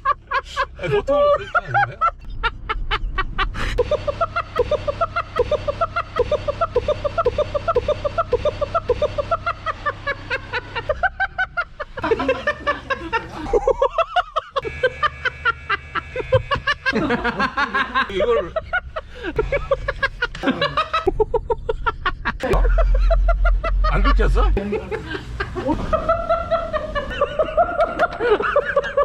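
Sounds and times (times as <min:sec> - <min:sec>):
steady low hum: 0:00.0 - 0:29.0
person laughing in rapid hoots: 0:03.7 - 0:11.1.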